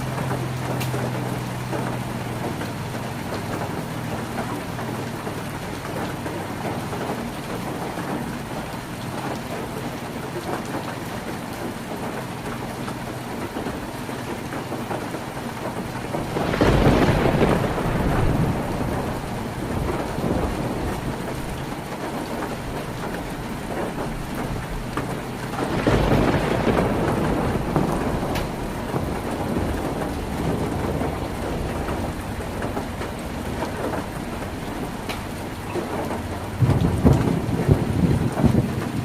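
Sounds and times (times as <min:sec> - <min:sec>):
heavy rain on a tin roof: 0:00.0 - 0:39.0
low thunder rumbles: 0:11.6 - 0:39.0.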